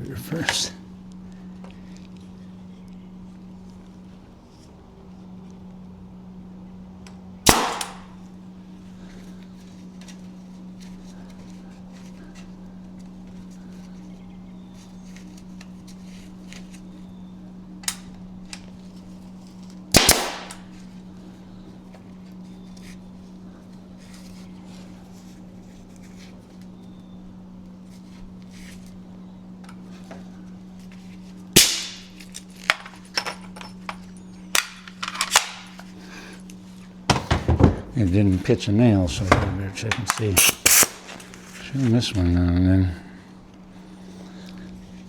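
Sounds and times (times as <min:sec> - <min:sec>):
steady low hum: 0:00.0 - 0:45.0
nail gun firing: 0:07.4 - 0:08.2, 0:19.9 - 0:20.7, 0:31.6 - 0:32.1, 0:39.3 - 0:41.2.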